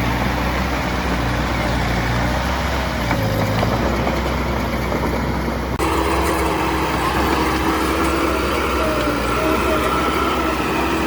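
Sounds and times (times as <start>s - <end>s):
engine with steady tone: 0.0s - 11.0s
heavy diesel engine running: 0.0s - 11.0s.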